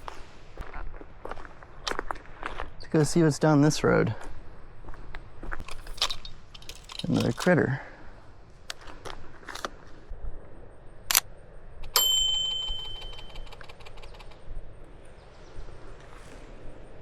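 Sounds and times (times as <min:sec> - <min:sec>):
steady high tone: 0:11.9 - 0:13.6
fast faint ticking: 0:12.6 - 0:14.4.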